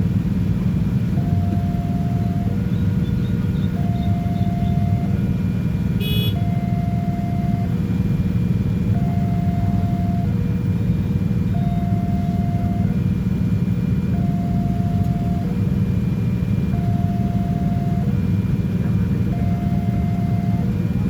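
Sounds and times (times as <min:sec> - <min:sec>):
level-crossing warning alarm: 0:01.0 - 0:05.4, 0:06.0 - 0:07.9, 0:08.7 - 0:10.4, 0:11.4 - 0:15.7, 0:16.6 - 0:18.4, 0:19.2 - 0:21.0.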